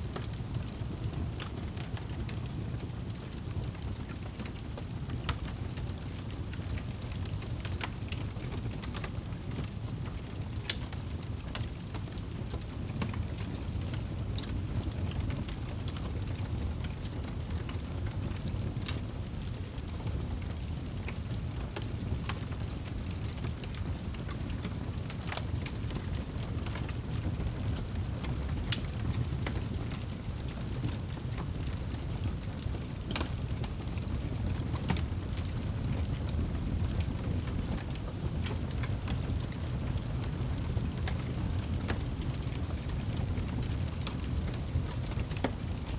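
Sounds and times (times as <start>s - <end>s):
fire crackling and popping: 0.0s - 45.9s
steady rain: 0.0s - 45.9s.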